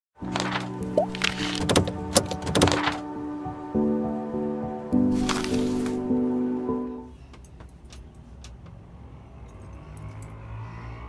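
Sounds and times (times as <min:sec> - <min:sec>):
music with held chords: 0:00.9 - 0:07.1.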